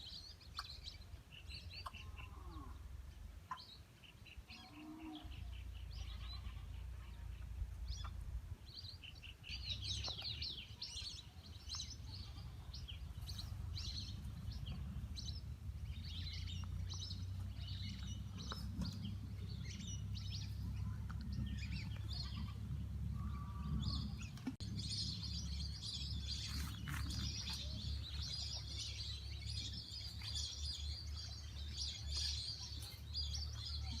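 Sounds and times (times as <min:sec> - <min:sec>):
birds chirping and twittering: 0:00.0 - 0:34.0
low rumble: 0:06.8 - 0:32.5.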